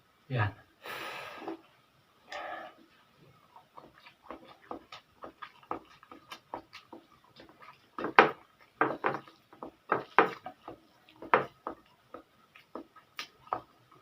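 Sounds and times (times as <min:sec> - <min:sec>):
wet mouth clicks and chewing: 0:03.4 - 0:09.7, 0:10.3 - 0:14.0.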